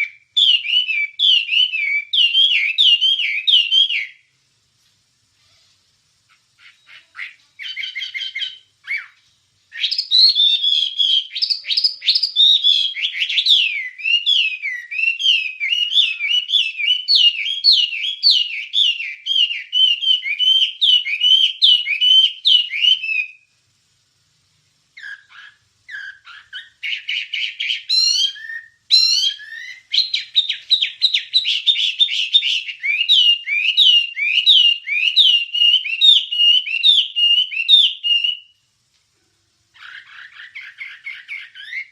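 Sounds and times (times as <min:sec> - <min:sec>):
songbird singing rapid notes: 0:06.3 - 0:23.4, 0:25.0 - 0:38.5
bird calls: 0:06.3 - 0:23.5, 0:25.0 - 0:38.6, 0:39.7 - 0:41.9.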